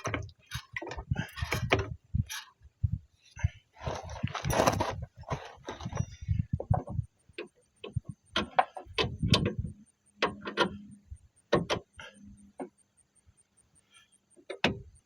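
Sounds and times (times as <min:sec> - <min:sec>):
hand tools clicking and knocking: 0:00.0 - 0:02.6.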